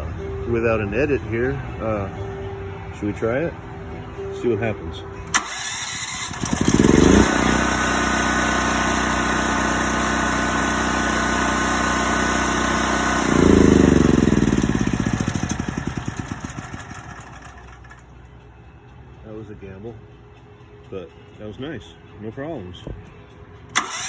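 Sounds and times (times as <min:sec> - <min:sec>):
generator engine running: 0:05.2 - 0:18.2, 0:23.7 - 0:24.0
generator engine winding down: 0:05.2 - 0:18.2, 0:23.7 - 0:24.0.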